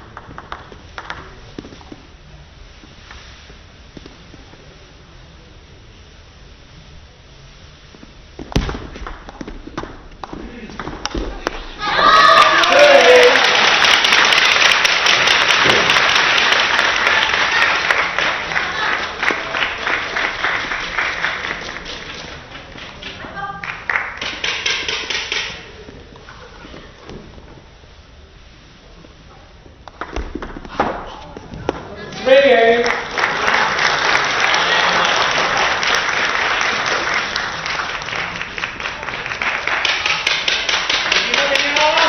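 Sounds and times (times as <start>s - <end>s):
spectators clapping: 0.0s - 1.2s, 11.0s - 25.6s, 32.6s - 42.0s.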